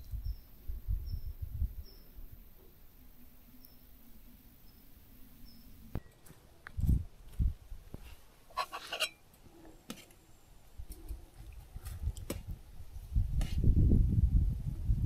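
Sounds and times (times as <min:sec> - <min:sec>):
low rumbling on microphone: 0:11.0 - 0:15.0.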